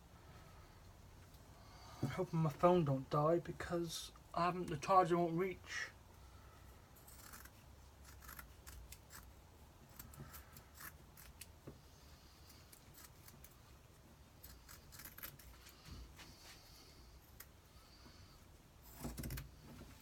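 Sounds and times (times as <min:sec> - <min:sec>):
scissors snipping: 0:07.1 - 0:09.3.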